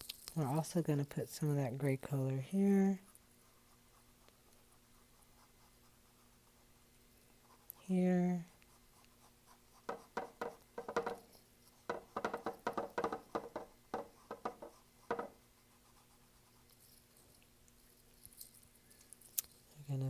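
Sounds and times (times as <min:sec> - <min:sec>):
paintbrush dabbing on canvas: 0:03.0 - 0:17.0.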